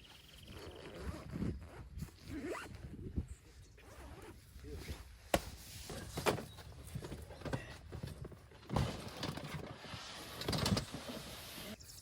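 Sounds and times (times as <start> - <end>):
camping gear knocks and clunks: 5.3 - 11.2.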